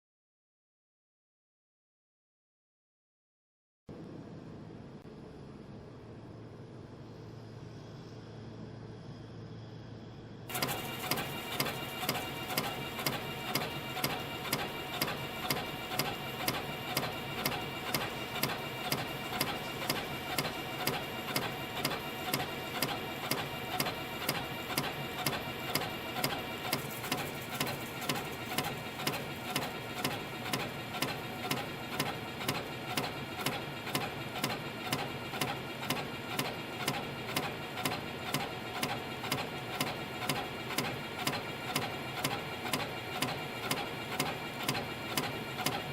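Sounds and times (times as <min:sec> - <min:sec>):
spring coiling machine running: 0:10.5 - 0:45.9.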